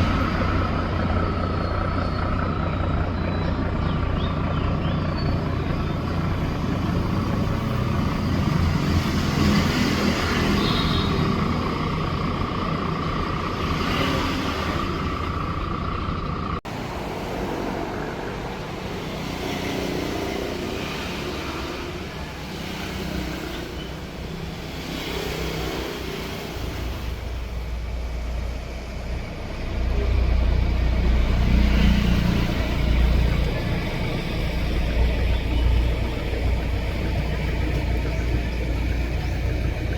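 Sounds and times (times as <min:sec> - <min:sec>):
boat engine running: 0:27.5 - 0:39.9.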